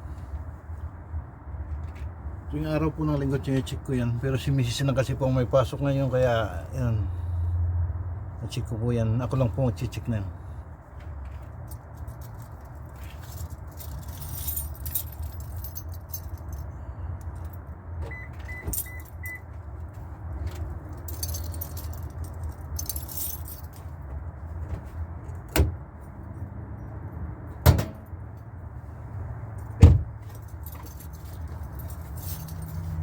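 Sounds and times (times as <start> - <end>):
metallic clinking and jingling: 11.3 - 17.8, 18.6 - 19.4, 20.4 - 24.5, 29.5 - 33.0.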